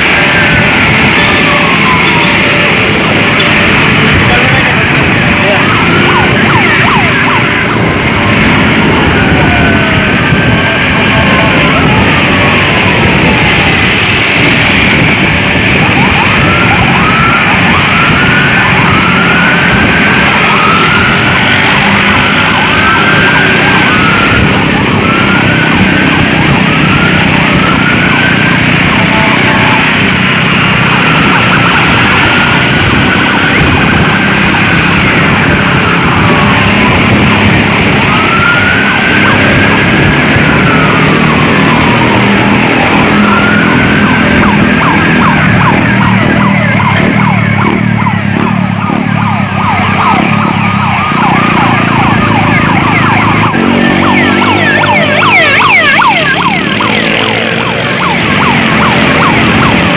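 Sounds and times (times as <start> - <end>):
emergency vehicle siren: 0.0 - 59.9
road noise roar: 0.0 - 59.9.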